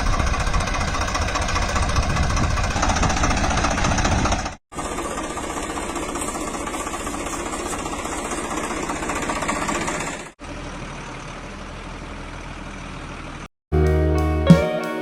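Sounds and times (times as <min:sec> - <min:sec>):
quieter steady running sound: 0:00.0 - 0:10.3
tractor engine running: 0:00.0 - 0:13.5.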